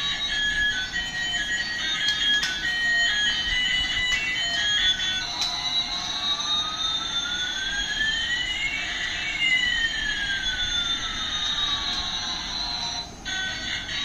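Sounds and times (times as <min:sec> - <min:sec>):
toy jet engine sound effect: 0:00.0 - 0:14.0.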